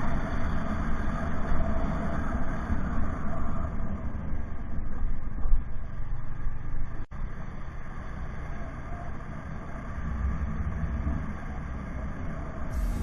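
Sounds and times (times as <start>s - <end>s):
vehicle rumble on road: 0.0s - 13.0s.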